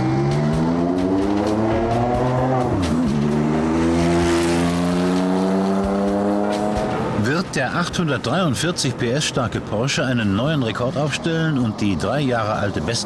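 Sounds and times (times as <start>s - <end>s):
sports car engine accelerating hard: 0.0s - 7.6s.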